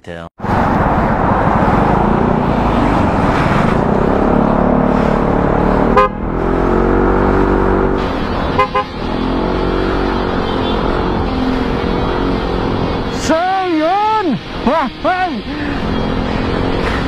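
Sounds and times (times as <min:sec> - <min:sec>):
road traffic: 0:00.4 - 0:17.0
car horn toots: 0:05.9 - 0:06.3, 0:08.3 - 0:09.2, 0:10.0 - 0:11.4.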